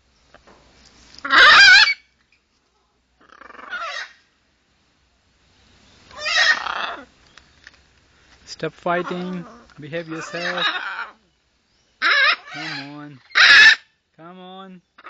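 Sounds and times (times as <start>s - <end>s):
parrots squawking: 1.2s - 2.1s, 3.2s - 4.2s, 6.1s - 7.1s, 9.0s - 11.2s, 12.0s - 13.9s.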